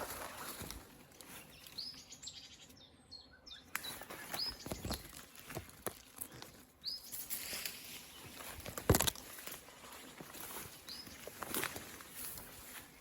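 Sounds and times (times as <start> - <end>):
small bird chirping: 1.3 - 8.7, 9.9 - 13.0
faint rustling with crackles: 3.8 - 13.0.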